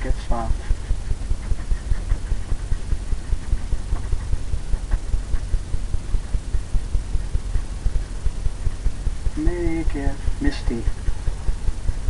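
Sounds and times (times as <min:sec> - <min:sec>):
brush tapping on canvas: 0:00.6 - 0:05.6.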